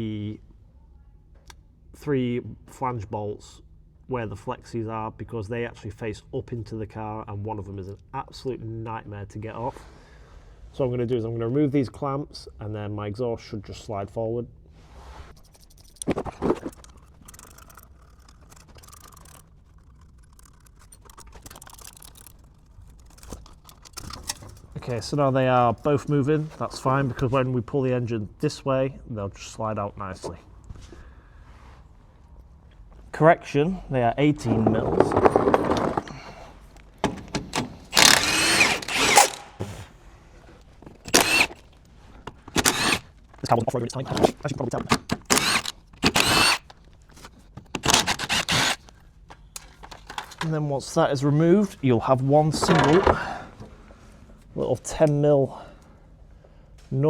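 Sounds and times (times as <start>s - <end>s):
metal scraping: 15.2s - 24.9s
tool clicks: 15.4s - 24.8s, 37.0s - 39.8s, 40.9s - 50.5s
power tool burst with metallic squealing: 37.9s - 39.6s, 41.0s - 41.6s.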